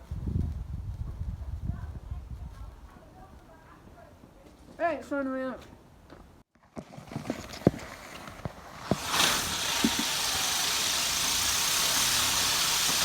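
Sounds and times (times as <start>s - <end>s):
firework hissing: 8.8s - 13.0s.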